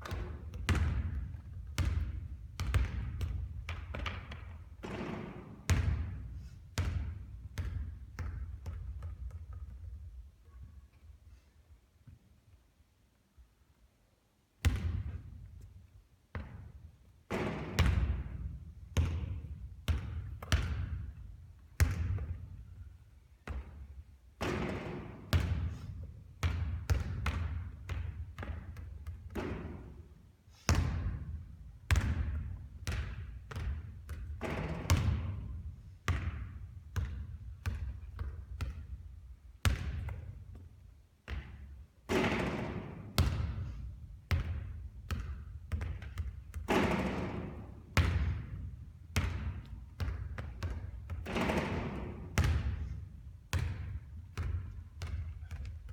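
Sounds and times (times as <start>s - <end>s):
basketball bouncing on hard court: 0.0s - 10.1s, 14.6s - 15.6s, 16.3s - 22.6s, 23.4s - 30.0s, 30.7s - 55.9s.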